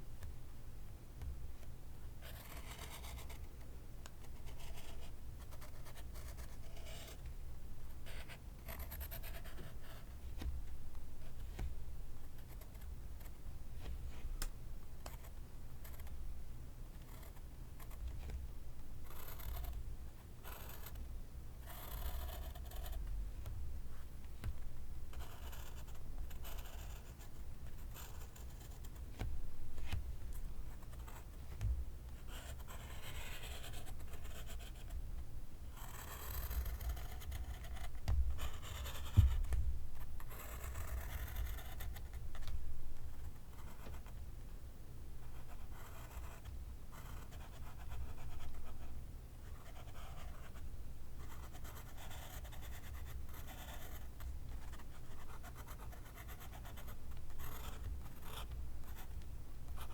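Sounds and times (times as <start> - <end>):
pencil scratching on paper: 2.2 - 3.5, 4.3 - 7.2, 8.1 - 10.5, 19.0 - 19.8, 20.4 - 21.0, 21.6 - 23.0, 25.1 - 30.0, 32.2 - 35.0, 35.7 - 44.2, 45.3 - 50.6, 51.2 - 59.9
soft knocks: 38.0 - 38.4.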